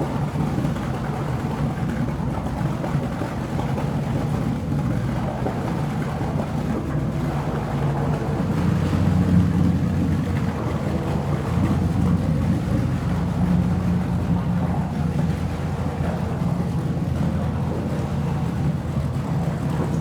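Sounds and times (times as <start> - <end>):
underwater droning rumble: 0.0 - 20.0
low hum: 4.1 - 20.0.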